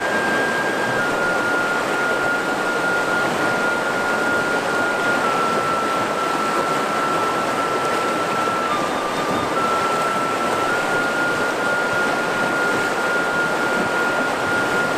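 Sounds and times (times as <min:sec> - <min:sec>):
river water rushing over rocks: 0:00.0 - 0:14.9
thin high whine: 0:00.0 - 0:14.9.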